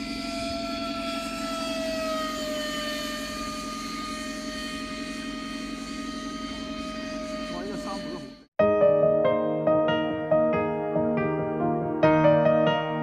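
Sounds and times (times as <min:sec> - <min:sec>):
drone propellers whining: 0:00.0 - 0:08.5.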